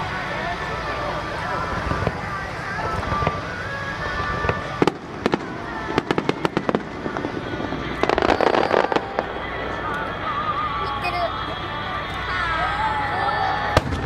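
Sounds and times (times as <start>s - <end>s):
fireworks crackling: 0.0s - 14.0s
fireworks popping: 0.7s - 10.9s, 13.6s - 14.0s
fireworks bangs: 1.6s - 11.4s, 12.0s - 14.0s.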